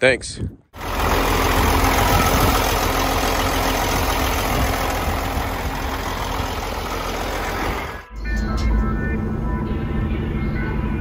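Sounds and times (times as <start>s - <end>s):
diesel engine running: 0.8s - 8.1s
loud rushing noise: 0.8s - 8.1s.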